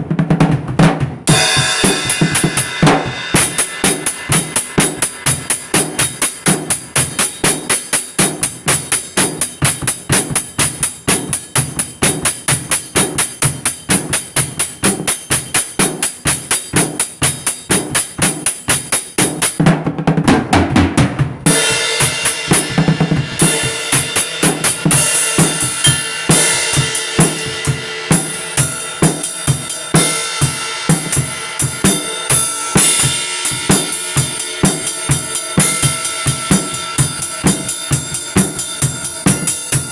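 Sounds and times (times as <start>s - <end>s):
drum kit playing a beat: 0.0s - 39.9s.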